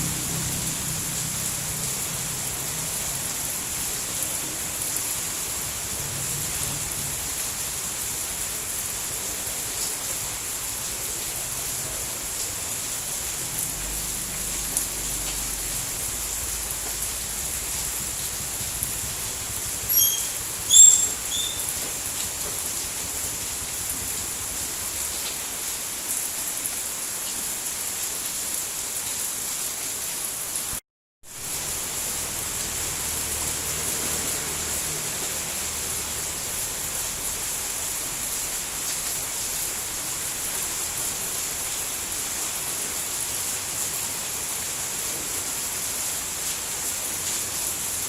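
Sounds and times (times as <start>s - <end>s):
rain hissing: 0.0s - 48.0s
high-pitched chirps: 19.9s - 21.7s.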